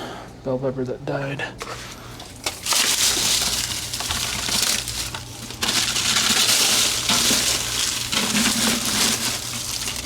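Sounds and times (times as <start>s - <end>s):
dry plant roots crunching and rustling: 2.3s - 10.0s.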